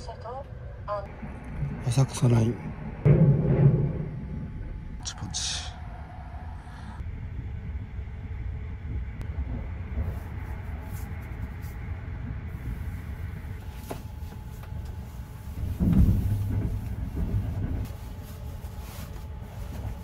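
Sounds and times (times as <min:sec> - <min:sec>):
train rumbling: 0:00.0 - 0:20.0
loud thump: 0:03.0 - 0:05.0, 0:15.6 - 0:17.9.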